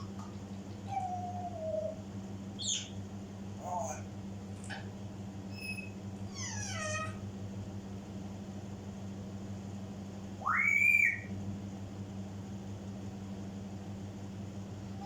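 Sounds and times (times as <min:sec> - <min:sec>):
parrot whistle: 0:02.6 - 0:03.0, 0:05.5 - 0:06.0, 0:10.4 - 0:11.3.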